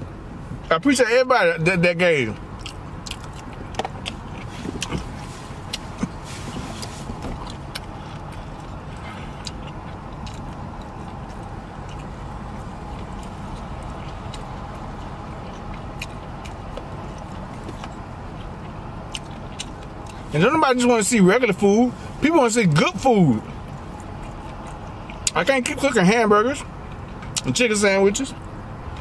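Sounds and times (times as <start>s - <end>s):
low car cabin hum: 0.0s - 29.0s
close chewing of food: 2.3s - 20.6s, 23.0s - 26.0s, 26.6s - 27.5s
wet mouth clicks and smacks: 2.6s - 5.1s.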